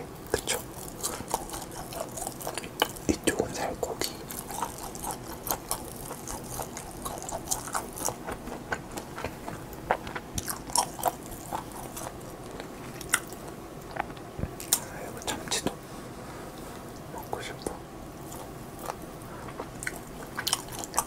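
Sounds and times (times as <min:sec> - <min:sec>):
wet chewing mouth clicks: 0:00.4 - 0:03.3.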